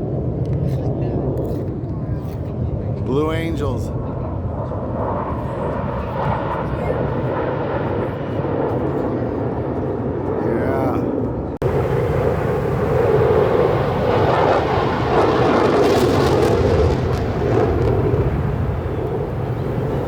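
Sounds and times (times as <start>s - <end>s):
jet aircraft flying past: 0.0s - 20.0s.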